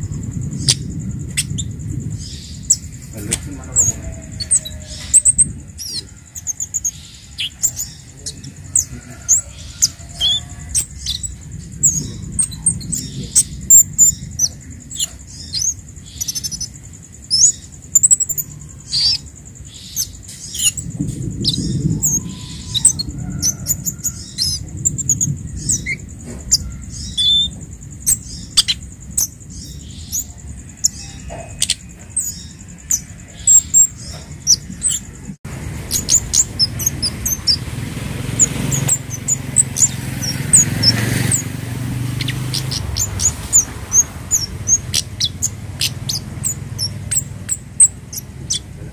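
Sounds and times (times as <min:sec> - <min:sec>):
bird chirping high-pitched: 0:00.0 - 0:48.9
low background rumble: 0:00.0 - 0:48.9.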